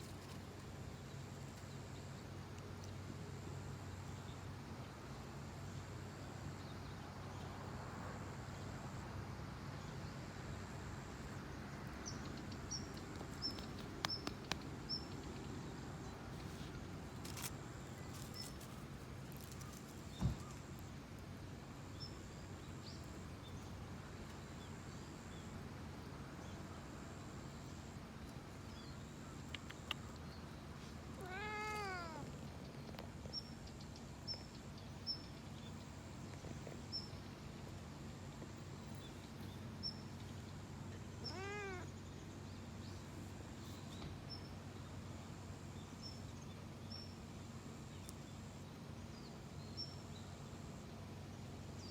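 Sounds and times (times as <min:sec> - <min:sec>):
cat meowing: 0:31.2 - 0:32.3, 0:41.2 - 0:41.9.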